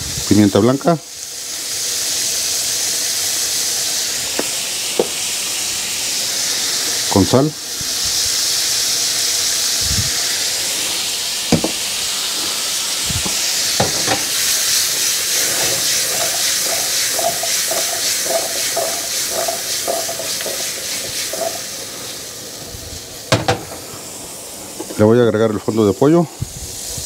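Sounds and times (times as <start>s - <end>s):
carrots sizzling in butter: 0.0s - 27.0s
knocks: 11.5s - 11.8s, 23.3s - 23.7s.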